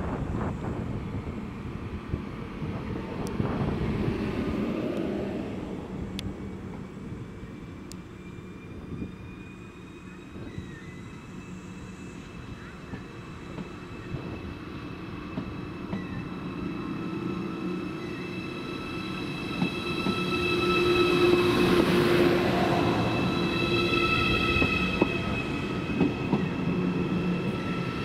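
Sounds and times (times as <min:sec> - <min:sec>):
train wheels rumbling: 0:10.2 - 0:28.0.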